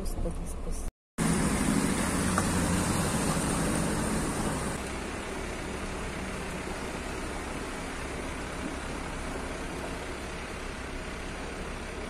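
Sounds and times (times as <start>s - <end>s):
car engine hum from inside: 0.1s - 12.0s
road and water hiss: 1.2s - 12.0s.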